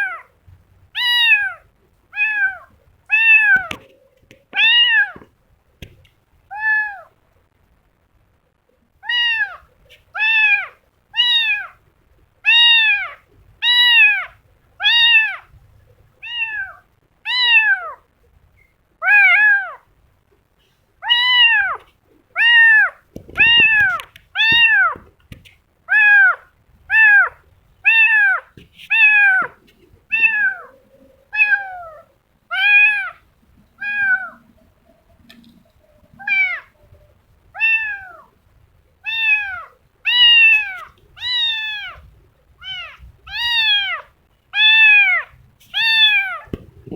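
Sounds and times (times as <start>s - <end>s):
kitten meowing: 1.0s - 1.6s, 2.2s - 3.8s, 4.6s - 5.2s, 6.5s - 7.1s, 9.0s - 11.8s, 12.4s - 15.5s, 16.2s - 18.0s, 19.0s - 19.8s, 21.0s - 25.0s, 25.9s - 30.7s, 31.3s - 33.2s, 33.8s - 34.5s, 36.2s - 36.8s, 37.5s - 38.3s, 39.0s - 46.6s.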